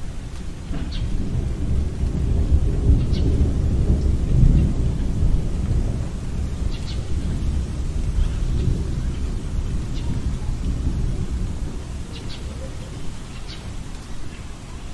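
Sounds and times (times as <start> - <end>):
high wind whistles: 0.0 - 14.9
wind deep rumble: 0.0 - 14.9.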